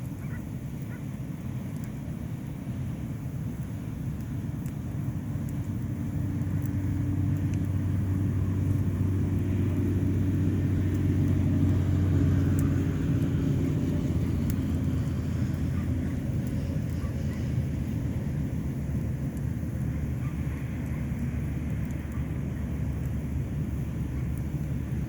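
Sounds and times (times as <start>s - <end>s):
faint sharp ticks: 3.6s - 4.8s.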